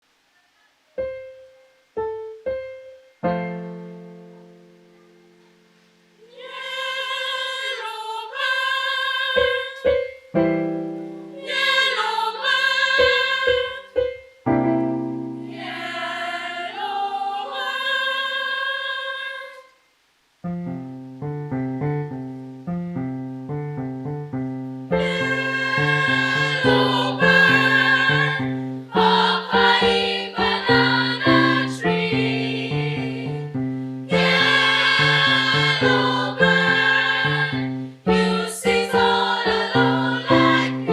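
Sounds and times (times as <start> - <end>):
piano accompaniment: 1.0 - 5.2, 9.4 - 11.4, 13.0 - 16.4, 20.5 - 40.9
female choir singing: 6.2 - 10.2, 11.2 - 14.1, 15.2 - 19.8, 24.9 - 40.9.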